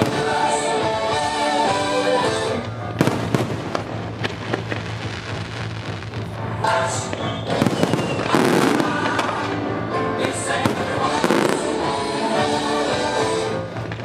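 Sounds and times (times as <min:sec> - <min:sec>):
fireworks bangs: 0:00.0 - 0:00.7, 0:02.6 - 0:12.0
fireworks crackling: 0:00.0 - 0:14.0
music: 0:00.0 - 0:14.0.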